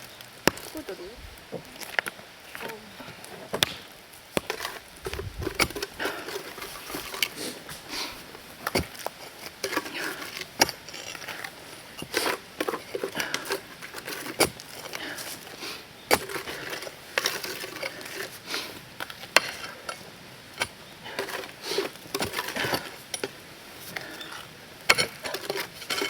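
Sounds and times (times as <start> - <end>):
digging in stony soil: 0.2 - 26.0
tools and stones clinking: 4.4 - 7.4, 8.6 - 15.5, 16.1 - 18.4, 19.0 - 26.0.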